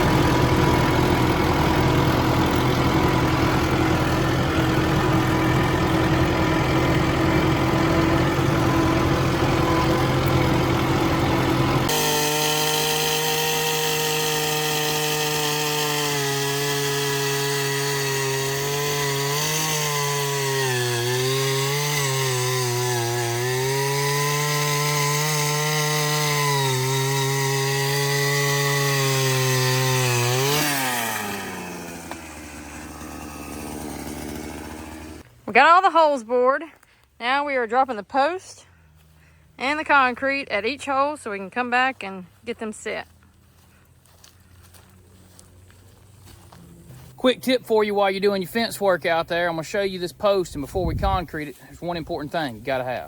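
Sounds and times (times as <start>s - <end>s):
post-hole auger engine: 0.0s - 35.8s.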